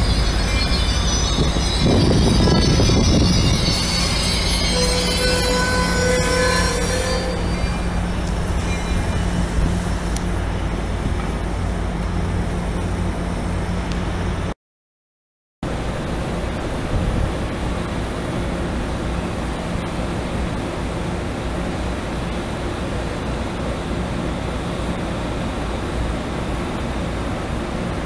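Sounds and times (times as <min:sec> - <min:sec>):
passenger train rumbling past: 0:00.0 - 0:14.5, 0:15.7 - 0:28.0
rushing noise: 0:00.0 - 0:14.5.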